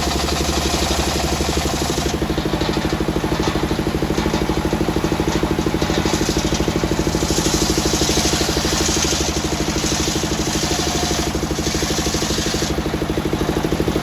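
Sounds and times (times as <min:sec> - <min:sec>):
sawmill engine pulsing: 0:00.0 - 0:14.0.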